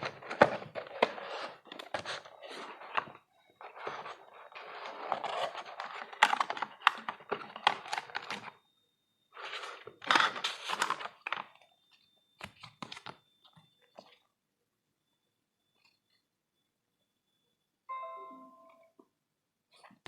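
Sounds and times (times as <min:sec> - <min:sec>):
packaging rustling: 0:00.0 - 0:08.5, 0:09.4 - 0:11.6.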